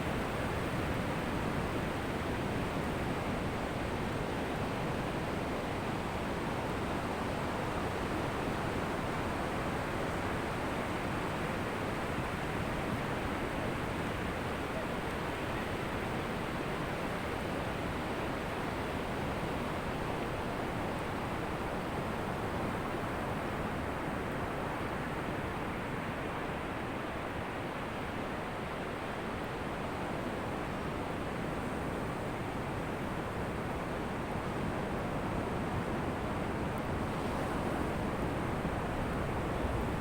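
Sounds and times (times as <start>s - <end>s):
ocean surf on a beach: 24.6s - 40.0s.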